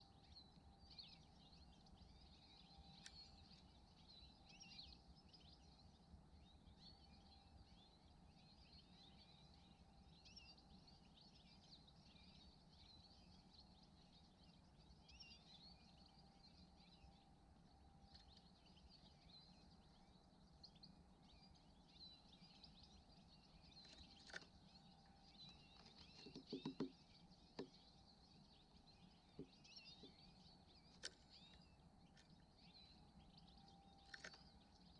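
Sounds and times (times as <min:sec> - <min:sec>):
songbirds chirping: 0:00.0 - 0:34.9
sharp knocks: 0:26.2 - 0:26.9.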